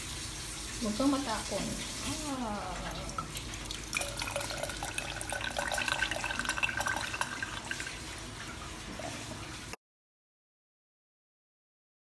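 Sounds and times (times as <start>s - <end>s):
liquid trickling into a glass: 2.6s - 9.4s.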